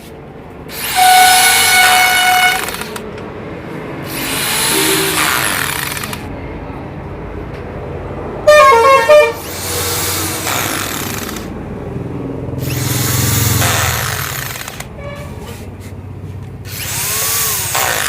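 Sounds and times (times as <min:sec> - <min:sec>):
power tool whirring: 0:00.7 - 0:03.0, 0:04.0 - 0:06.3, 0:09.4 - 0:11.5, 0:12.6 - 0:14.9, 0:16.6 - 0:18.0
horn honking: 0:00.9 - 0:02.7, 0:08.4 - 0:09.5.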